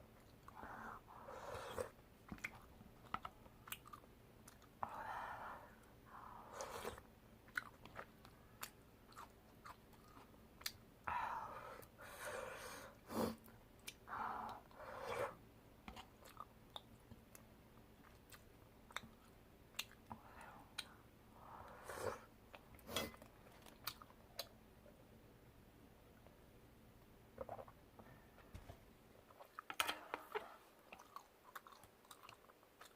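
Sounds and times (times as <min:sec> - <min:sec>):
chewing with wet mouth clicks: 0:02.3 - 0:04.7, 0:15.9 - 0:20.1, 0:29.3 - 0:32.9.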